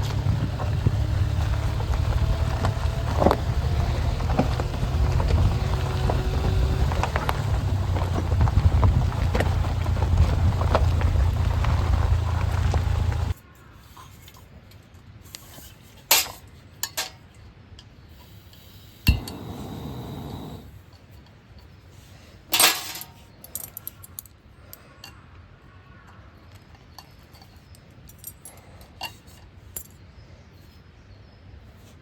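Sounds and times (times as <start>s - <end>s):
steady low rumble: 0.0s - 13.4s.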